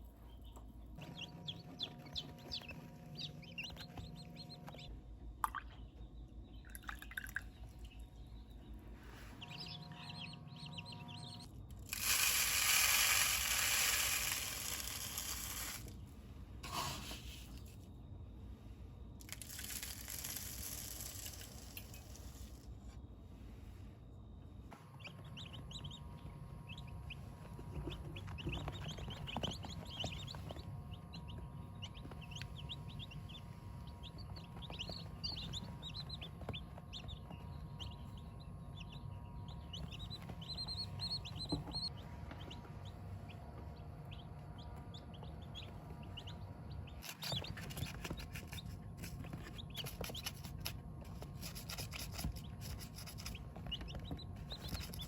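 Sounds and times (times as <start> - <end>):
steady low hum: 0.0 - 55.0
chickens peeping: 0.1 - 4.9, 8.4 - 11.5, 25.0 - 50.7, 51.6 - 55.0.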